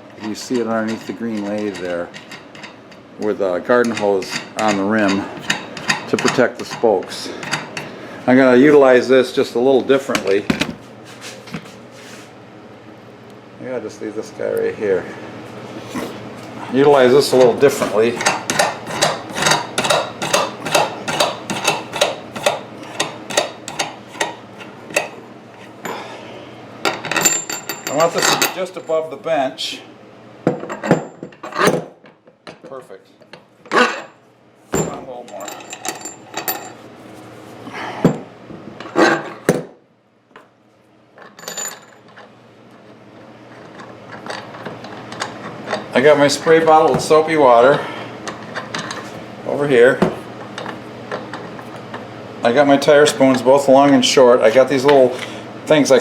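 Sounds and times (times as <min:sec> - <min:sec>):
metal tools knocking: 0:03.8 - 0:07.9, 0:16.9 - 0:25.1.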